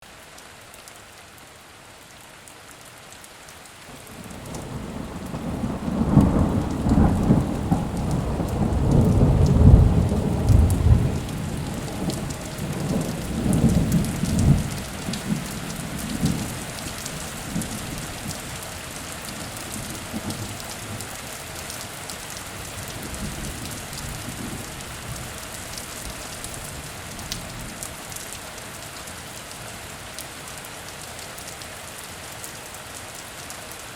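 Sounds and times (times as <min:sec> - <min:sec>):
heavy rain: 0:00.0 - 0:33.9
thunder rolling: 0:04.4 - 0:18.4.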